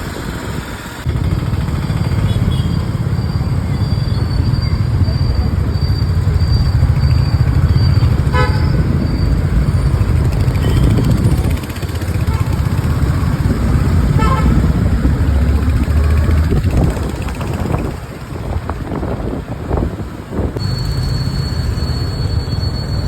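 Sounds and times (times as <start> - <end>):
low rumble of engine and wind: 0.0 - 23.0
vehicle horn tooting: 2.2 - 2.9, 8.1 - 9.0, 10.6 - 11.2, 14.1 - 14.7.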